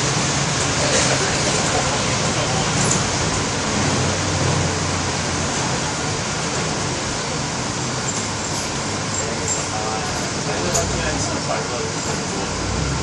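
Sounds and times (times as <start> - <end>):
heavy rain hiss: 0.0 - 13.0
low engine hum: 9.1 - 13.0.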